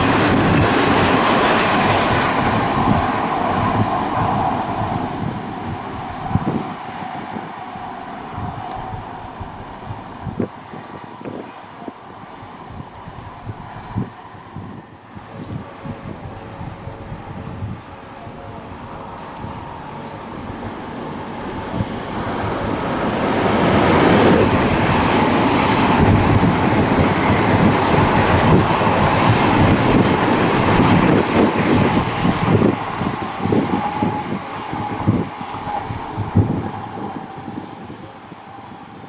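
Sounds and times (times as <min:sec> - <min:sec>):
electric train passing: 0:00.0 - 0:39.0.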